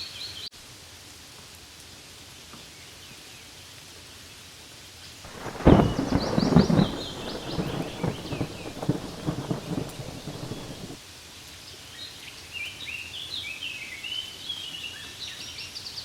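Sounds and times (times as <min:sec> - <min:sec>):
rain falling on leaves: 0:00.3 - 0:13.6
thunder rumbling: 0:05.3 - 0:11.0.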